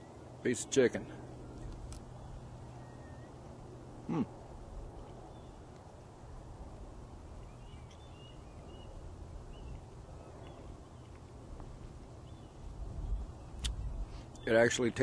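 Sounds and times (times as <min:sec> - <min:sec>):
low outdoor rumble: 0:00.0 - 0:15.0
small bird chirping: 0:07.4 - 0:11.3.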